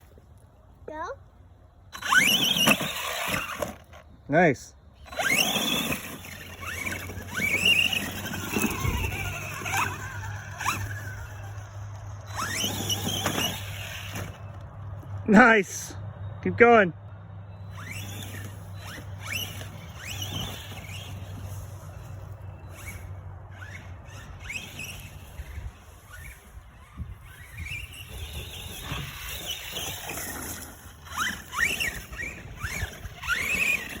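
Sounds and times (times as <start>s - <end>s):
rc truck motor whining: 1.7s - 4.2s, 4.8s - 15.2s, 17.4s - 34.0s.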